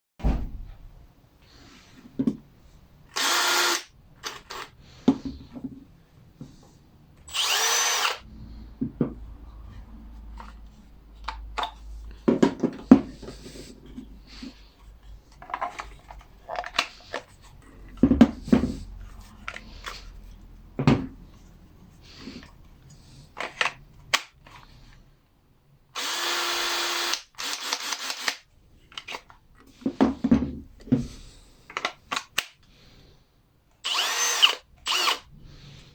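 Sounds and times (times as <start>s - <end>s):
cordless drill whirring: 3.1s - 4.7s, 7.3s - 8.3s, 26.0s - 28.4s, 33.8s - 35.3s.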